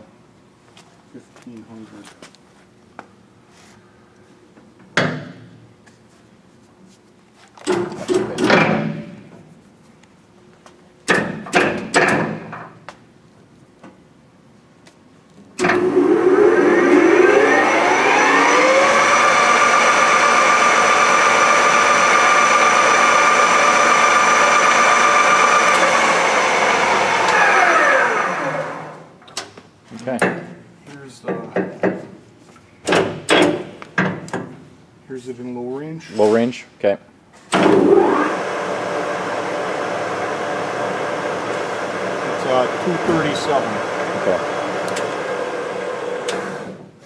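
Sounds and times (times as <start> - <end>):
lathe humming: 15.6 - 29.0, 37.7 - 46.7.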